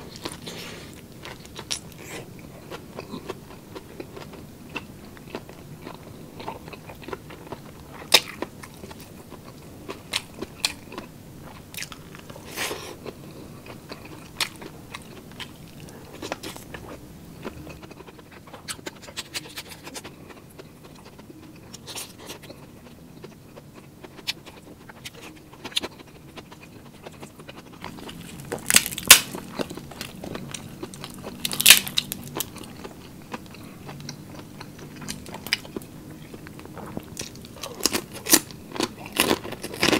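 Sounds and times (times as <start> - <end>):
person chewing food: 0.0 - 39.9
loud crunchy bites: 27.9 - 32.9.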